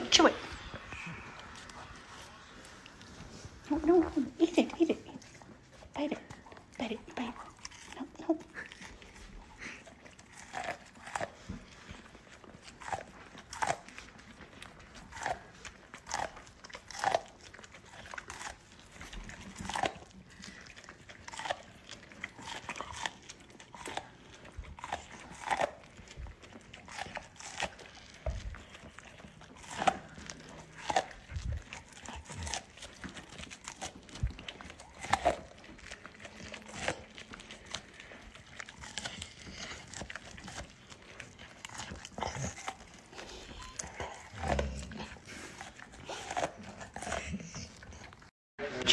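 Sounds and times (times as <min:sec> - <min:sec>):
dog crunching corn cob: 0:00.1 - 0:48.9.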